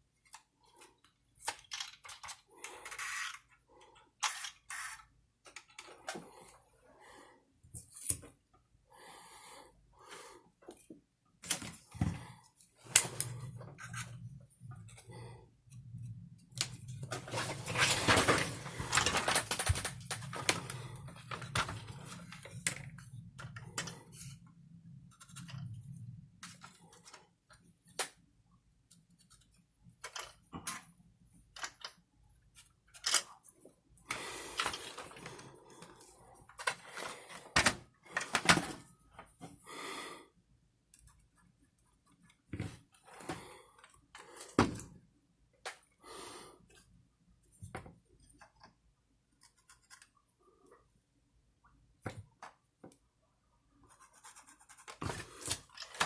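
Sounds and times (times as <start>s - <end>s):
clicks and rattles of small parts: 0.3s - 3.6s, 4.2s - 6.2s, 16.6s - 24.0s, 29.2s - 30.8s, 32.9s - 33.4s.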